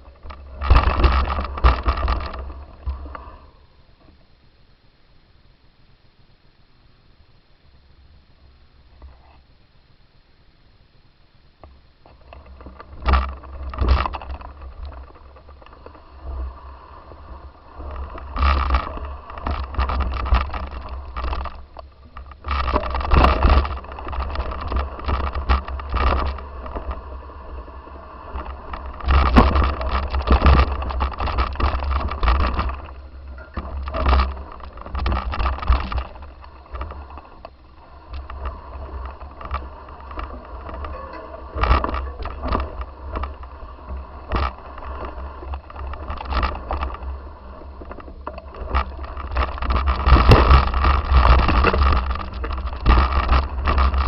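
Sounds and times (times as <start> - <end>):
rattling and scraping: 0.0 - 3.5, 12.0 - 54.0.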